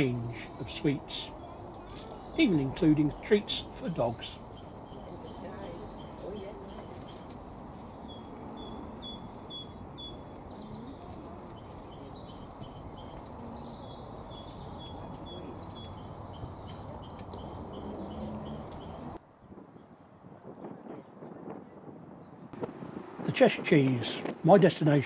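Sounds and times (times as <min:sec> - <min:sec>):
songbirds singing: 0:00.0 - 0:20.0
low outdoor background noise: 0:00.0 - 0:25.0.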